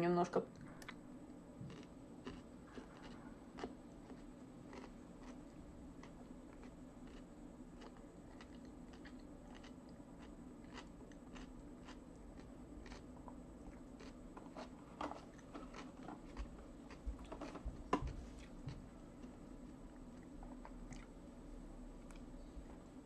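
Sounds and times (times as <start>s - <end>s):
low hum: 0.0s - 23.0s
person chewing: 1.6s - 17.6s, 18.3s - 21.2s.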